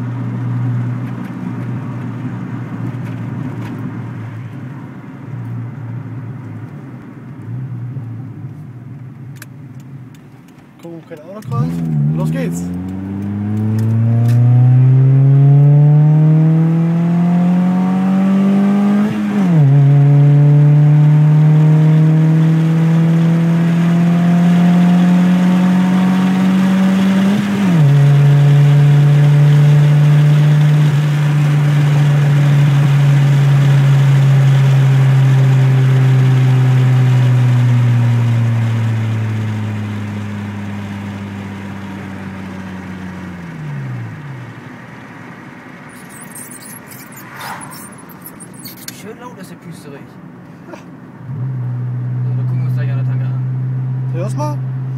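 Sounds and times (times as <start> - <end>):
car engine accelerating: 11.1 - 49.6, 50.2 - 54.9.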